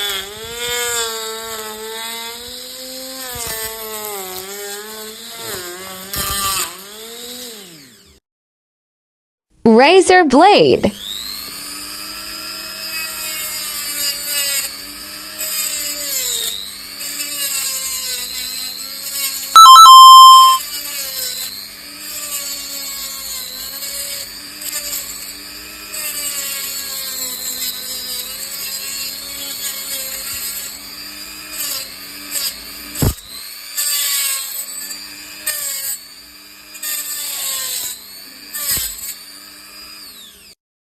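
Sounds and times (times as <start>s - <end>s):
loud blaring tone: 19.6s - 20.6s.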